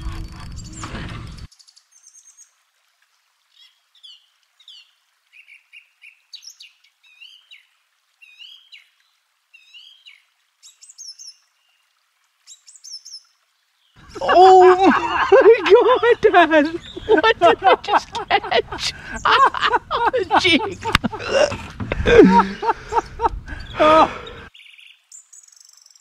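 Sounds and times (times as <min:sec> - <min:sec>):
birds chirping and singing: 0:14.0 - 0:25.8.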